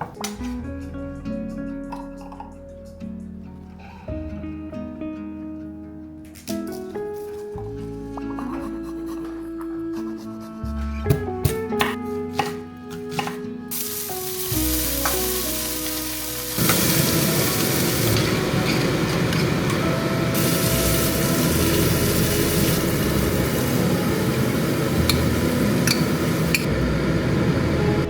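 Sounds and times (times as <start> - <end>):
soft background music: 0.0 - 28.0
food sizzling in a frying pan: 13.7 - 26.7.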